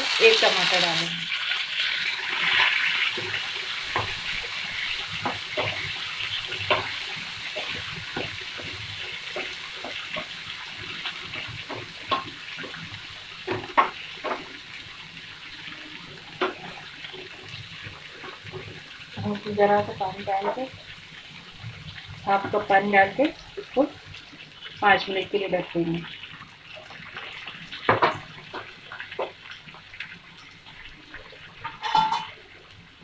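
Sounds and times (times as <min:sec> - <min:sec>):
food sizzling in oil: 0:00.0 - 0:33.0
spatula knocking and scraping pan: 0:03.0 - 0:12.8, 0:13.4 - 0:14.6, 0:31.6 - 0:32.4.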